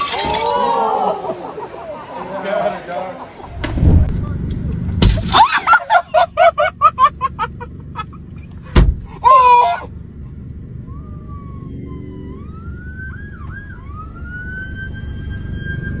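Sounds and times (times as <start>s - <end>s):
steady low rumble: 3.5s - 9.1s
wailing siren-like tone: 10.7s - 16.0s.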